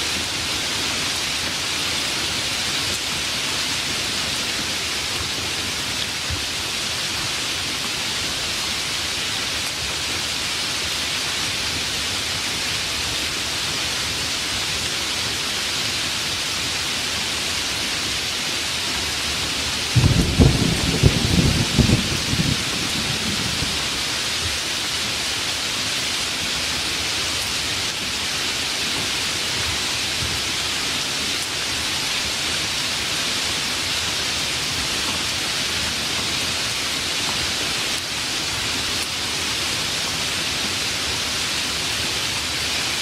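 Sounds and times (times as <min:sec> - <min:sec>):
heavy rain: 0:00.0 - 0:43.0.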